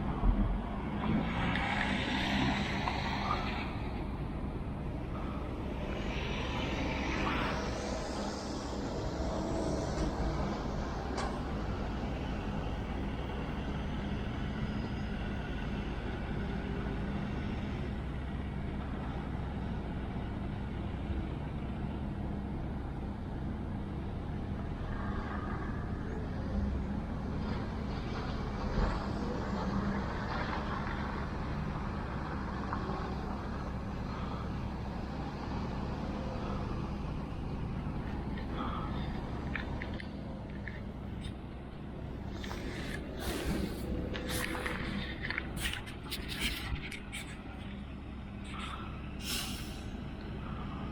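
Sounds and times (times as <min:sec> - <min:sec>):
mountain bike tyres rolling: 0:36.4 - 0:47.9.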